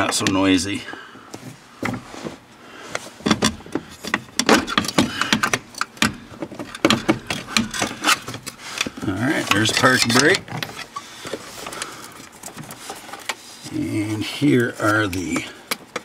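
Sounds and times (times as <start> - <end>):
metal clanks and rattles: 3.2 - 11.0.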